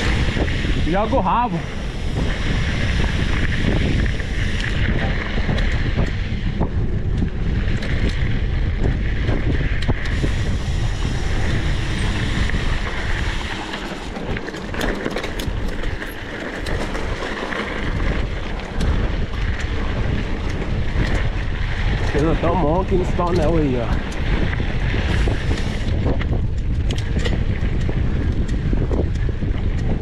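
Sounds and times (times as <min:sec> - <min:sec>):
wind buffeting microphone: 0:00.0 - 0:30.0
small clicks: 0:25.2 - 0:30.0.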